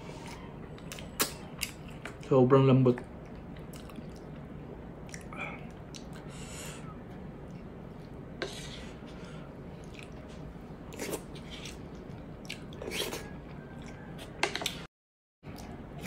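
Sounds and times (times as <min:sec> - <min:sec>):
chewing and lip smacking: 0:03.2 - 0:06.3, 0:10.9 - 0:14.9.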